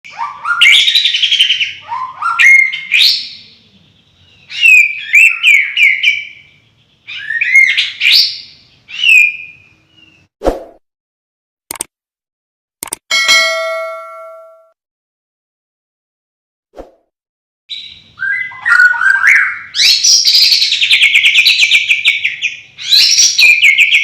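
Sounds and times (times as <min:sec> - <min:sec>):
songbird singing: 0:00.1 - 0:10.3, 0:17.7 - 0:24.0.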